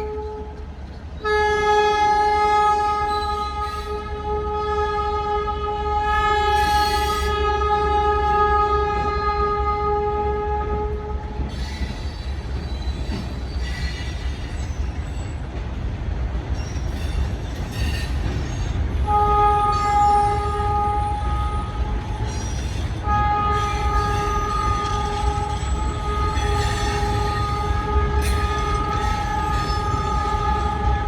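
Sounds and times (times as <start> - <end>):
train rumbling: 0.0 - 31.0
locomotive air horn blasts: 1.2 - 11.4, 19.0 - 22.3, 23.0 - 31.0
faint high wheel squeal: 11.5 - 15.4, 16.6 - 18.8, 22.2 - 23.0, 23.6 - 30.4.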